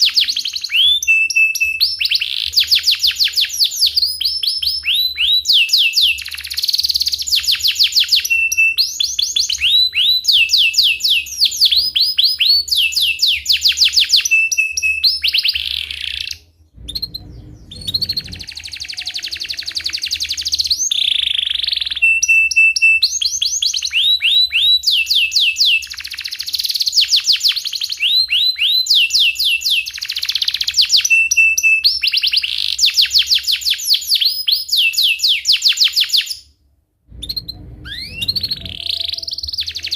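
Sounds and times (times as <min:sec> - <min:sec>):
canary singing: 0:00.0 - 0:36.4, 0:37.1 - 0:39.9.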